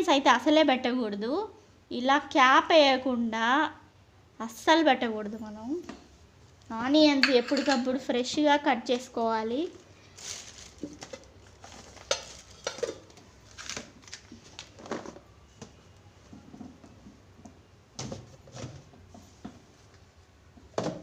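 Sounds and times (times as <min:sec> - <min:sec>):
food containers knocking and clicking: 0:07.2 - 0:08.5, 0:10.8 - 0:14.0.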